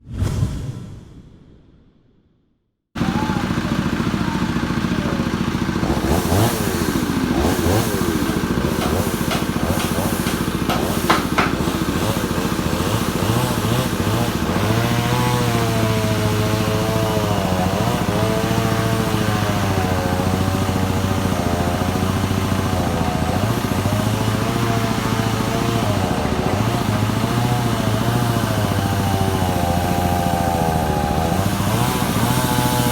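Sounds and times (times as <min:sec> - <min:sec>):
engine running: 0:03.0 - 0:32.9.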